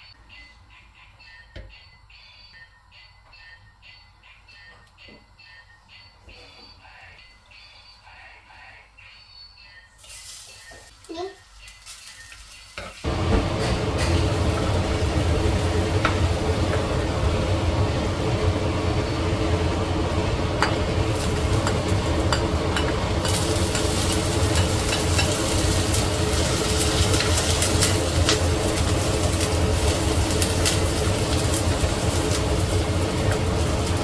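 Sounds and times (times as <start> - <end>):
food sizzling in a pan: 10.0 - 34.0.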